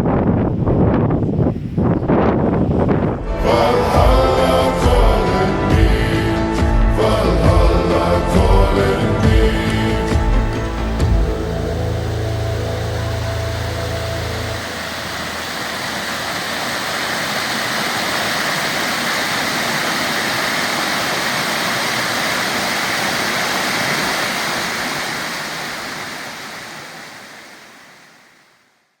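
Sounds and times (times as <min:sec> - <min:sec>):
rushing water: 0:09.2 - 0:28.8.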